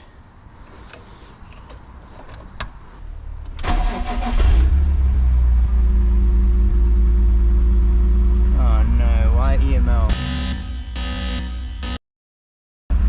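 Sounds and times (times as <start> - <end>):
car engine idling: 3.1 - 10.1
starter cranking engine: 3.6 - 4.8.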